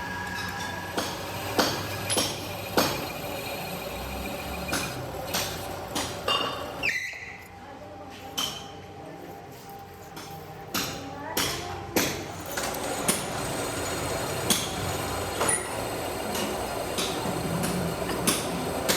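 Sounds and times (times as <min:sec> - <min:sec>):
machinery hum: 0:00.0 - 0:10.7, 0:12.2 - 0:18.9.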